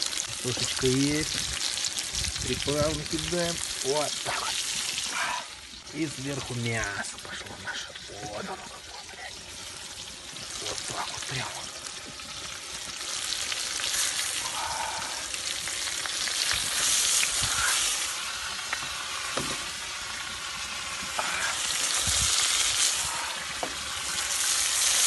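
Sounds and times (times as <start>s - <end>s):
food sizzling in oil: 0.0s - 25.0s
sharp pops and ticks: 15.6s - 17.7s, 18.6s - 19.7s.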